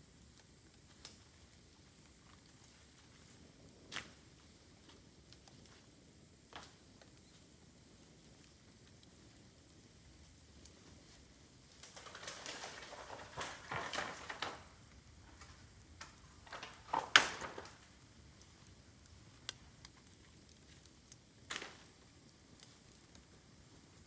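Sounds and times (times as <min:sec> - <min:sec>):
bonfire crackling: 0:00.0 - 0:24.0.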